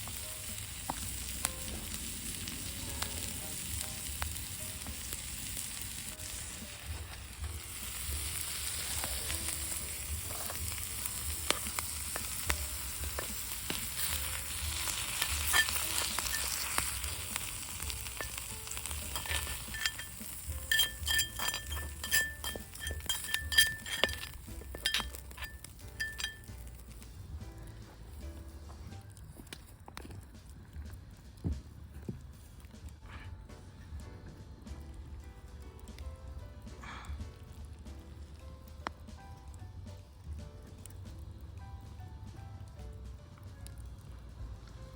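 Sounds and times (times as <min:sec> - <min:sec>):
meat sizzling on a griddle: 0:00.0 - 0:27.0.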